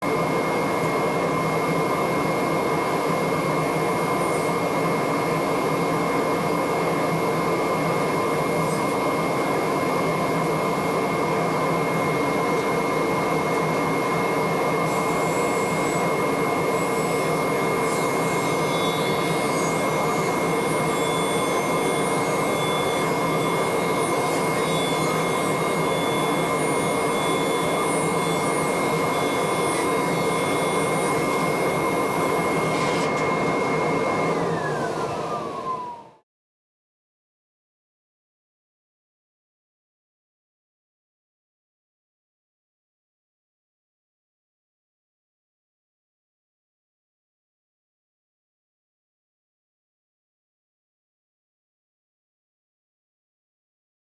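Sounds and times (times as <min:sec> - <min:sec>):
machine running: 0:18.5 - 0:36.0.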